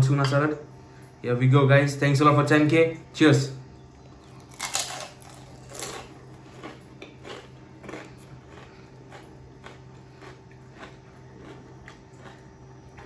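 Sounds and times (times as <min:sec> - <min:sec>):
person chewing crunchy snack: 0:04.3 - 0:13.0.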